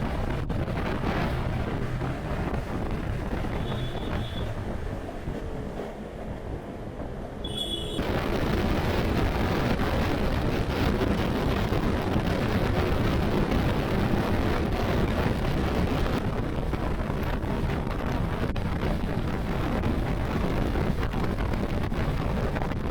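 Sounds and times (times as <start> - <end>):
road noise: 0.0 - 22.9
wind buffeting microphone: 0.0 - 22.9
brief high tone: 7.4 - 8.0.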